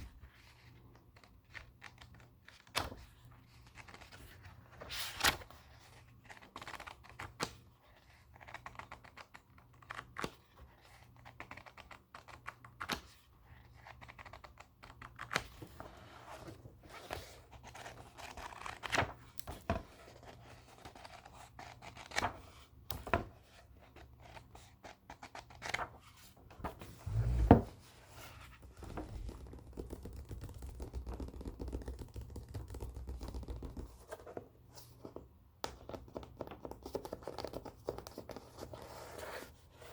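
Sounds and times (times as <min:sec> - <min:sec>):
low thump: 0:27.1 - 0:27.8.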